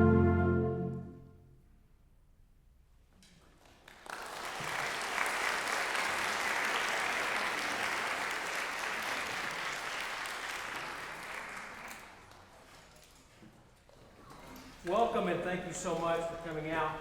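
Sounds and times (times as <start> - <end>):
audience applauding: 3.6 - 12.5.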